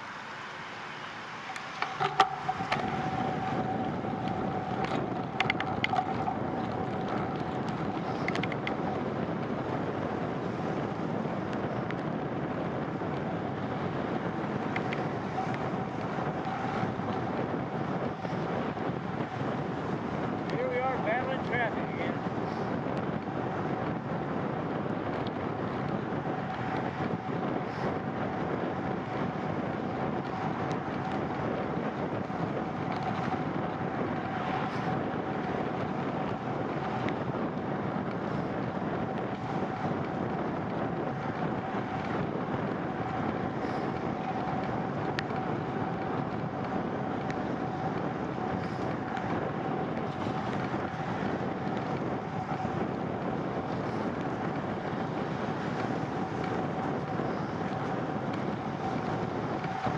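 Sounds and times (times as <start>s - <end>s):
bicycle road noise on wet pavement: 0.0s - 59.9s
faint steady whine: 0.0s - 59.9s
rushing wind: 0.0s - 59.9s
light ticks: 4.2s - 8.8s.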